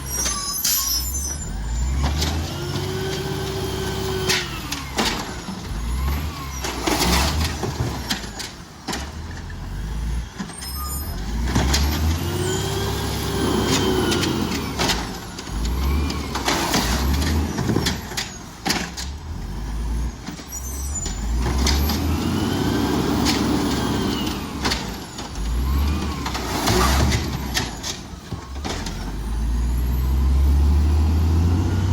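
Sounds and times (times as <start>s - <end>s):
garbage truck engine revving: 0.0s - 31.9s
metal and bins banging: 13.5s - 19.3s, 23.0s - 29.3s.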